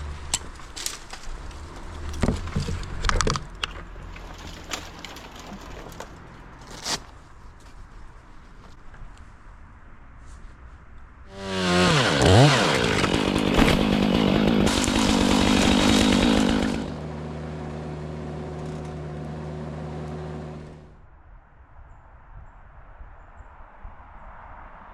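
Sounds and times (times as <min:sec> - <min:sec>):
chainsaw revving and idling: 0:11.3 - 0:20.9.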